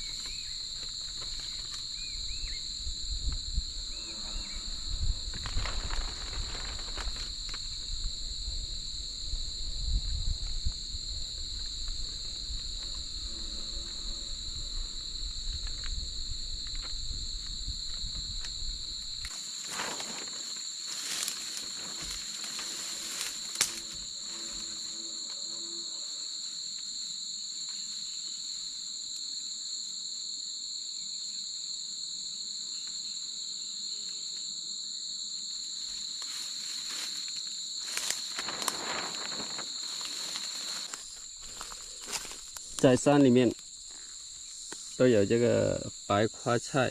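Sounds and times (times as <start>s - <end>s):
rustles: 0.0s - 8.2s, 14.8s - 25.5s, 35.7s - 45.1s
insect chorus trilling: 0.0s - 46.9s.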